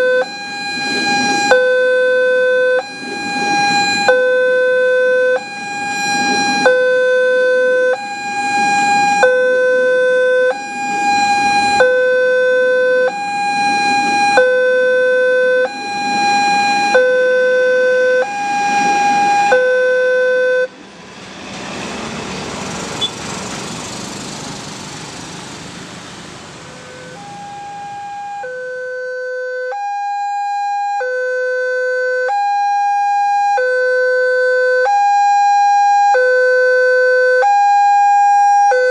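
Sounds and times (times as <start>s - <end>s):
level crossing two-tone alarm: 0.0s - 20.7s, 26.7s - 38.9s
broad rushing noise: 0.1s - 28.5s.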